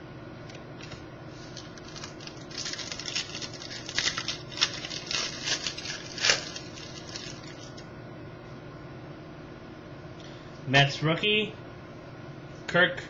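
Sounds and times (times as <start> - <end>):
trading cards crinkling and clicking: 0.8 - 7.8.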